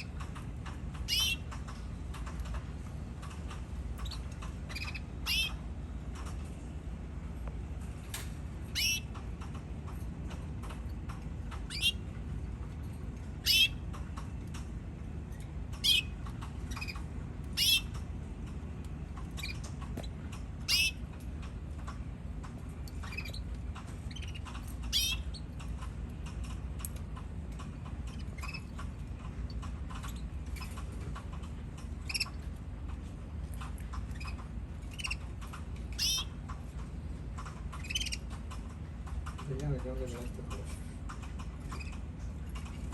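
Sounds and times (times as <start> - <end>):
steady low hum: 0.0 - 42.9
canaries chirping: 1.0 - 1.5, 4.0 - 5.7, 8.7 - 9.2, 11.6 - 12.0, 13.4 - 13.8, 15.3 - 18.0, 19.4 - 21.0, 22.9 - 23.4, 24.0 - 25.8, 31.9 - 32.4, 34.0 - 35.3, 35.9 - 36.3, 37.7 - 38.4.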